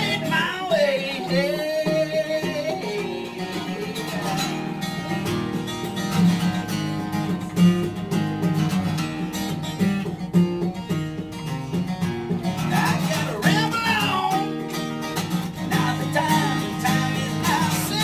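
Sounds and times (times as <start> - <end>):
person singing: 0.0 - 8.0, 12.4 - 14.7, 15.5 - 18.0
acoustic guitar strumming: 0.0 - 18.0.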